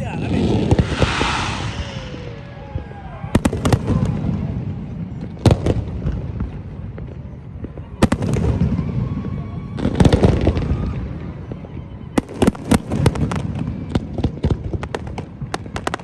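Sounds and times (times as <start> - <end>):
firecrackers popping and crackling: 12.2 - 16.0.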